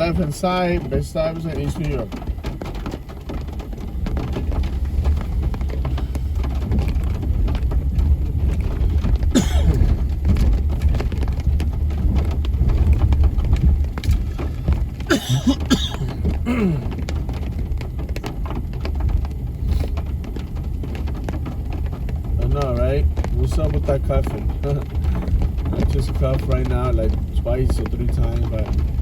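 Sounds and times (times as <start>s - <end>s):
car driving in heavy rain: 0.0s - 29.0s
man coughing: 9.3s - 9.9s, 15.1s - 16.9s.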